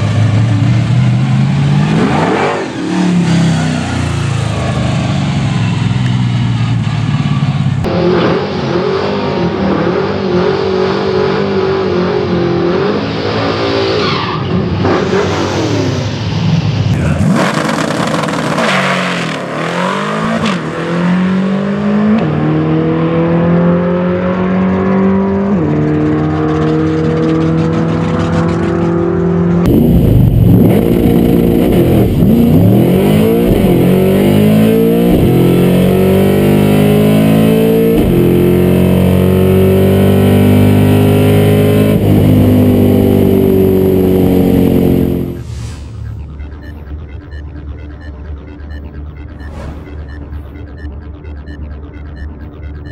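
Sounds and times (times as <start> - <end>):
car engine accelerating hard: 0.0 - 52.9
deep exhaust note: 29.7 - 36.4.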